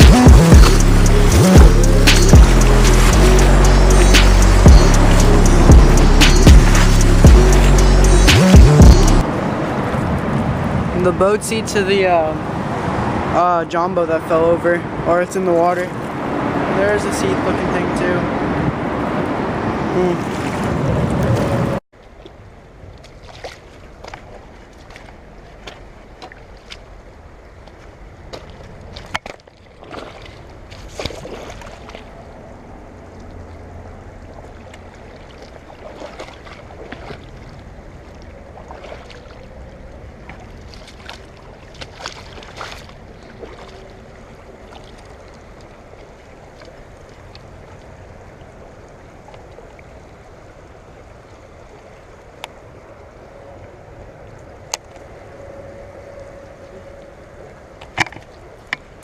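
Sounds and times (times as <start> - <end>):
river water flowing: 0.0 - 59.0
short sharp splashes or clicks: 40.3 - 43.8.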